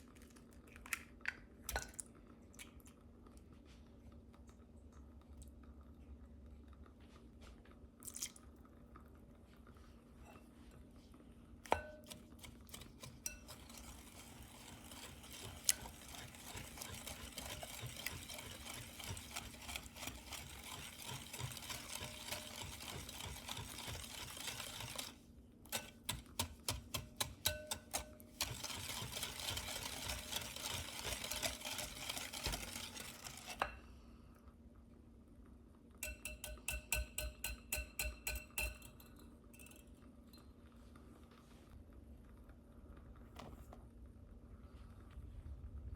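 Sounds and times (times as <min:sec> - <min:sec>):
stirring in a mixing bowl: 0:08.4 - 0:34.5, 0:36.0 - 0:40.5.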